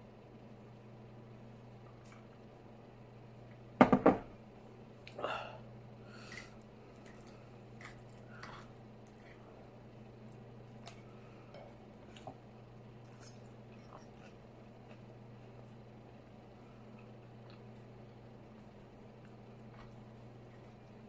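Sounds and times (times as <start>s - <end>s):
steady low hum: 0.0s - 21.0s
chewing and wet mouth sounds: 6.2s - 15.9s, 16.8s - 21.0s.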